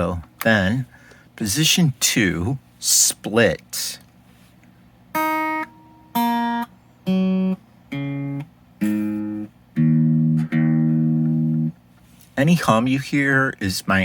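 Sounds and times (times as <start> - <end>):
electric guitar open strings picked: 7.1 - 11.7.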